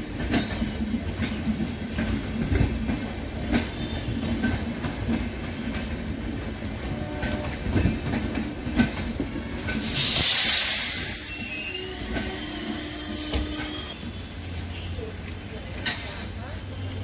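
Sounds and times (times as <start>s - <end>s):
train rumble: 0.0s - 17.0s
train wheels clacking: 0.0s - 17.0s
air hiss: 9.6s - 11.6s.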